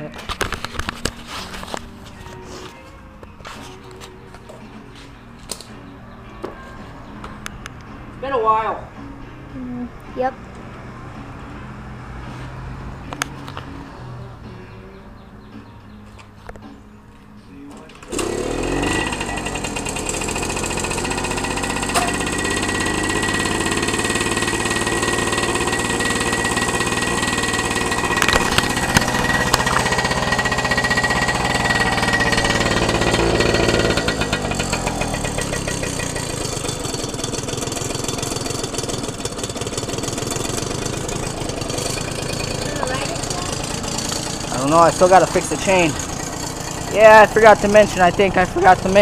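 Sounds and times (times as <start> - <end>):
motorcycle engine idling: 18.0 - 49.0.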